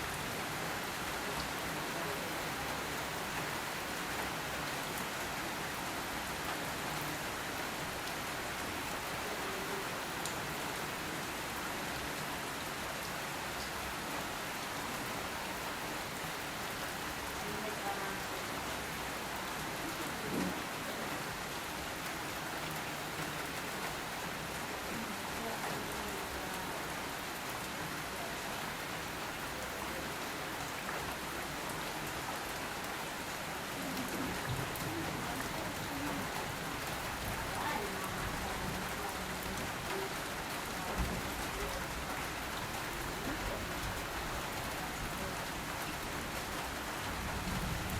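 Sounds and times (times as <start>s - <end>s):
rain pattering: 0.0s - 47.9s.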